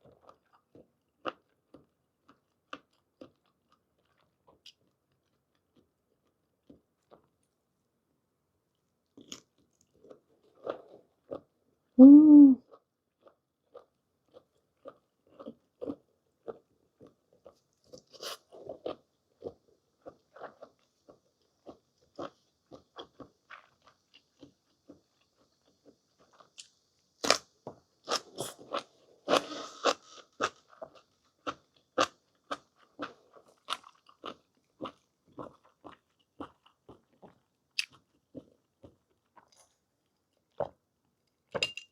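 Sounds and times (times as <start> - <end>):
person humming: 12.0 - 12.6.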